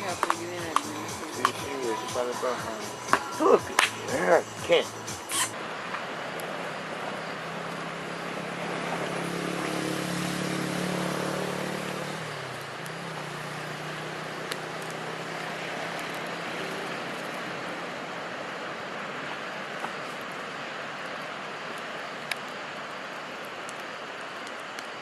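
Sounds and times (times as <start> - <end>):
passing engine hum: 0.0 - 19.3
steady wash of noise: 0.0 - 25.0.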